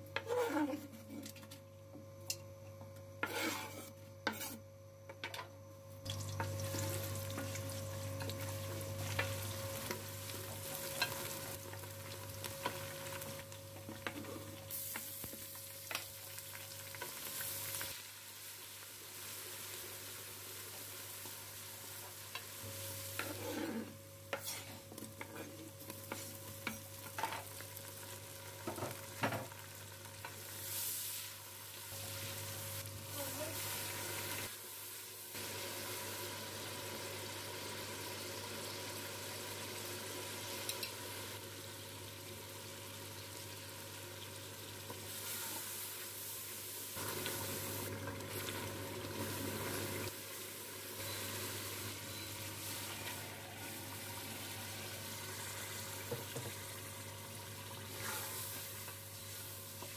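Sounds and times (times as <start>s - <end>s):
wooden spoon scraping a pot: 3.2s - 4.6s, 23.1s - 27.4s
onions sizzling in hot oil: 6.0s - 59.9s.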